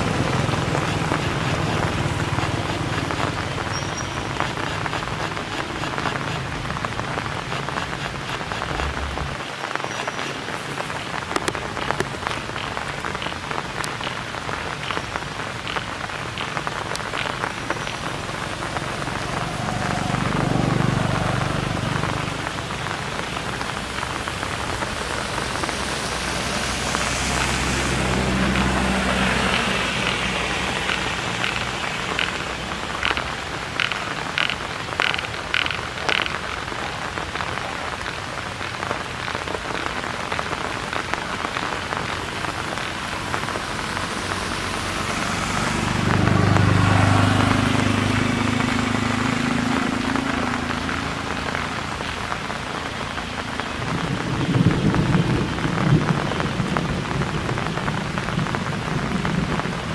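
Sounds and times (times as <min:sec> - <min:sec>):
rain falling: 0:00.0 - 0:59.9
low rumble: 0:08.7 - 0:09.4, 0:17.0 - 0:29.9.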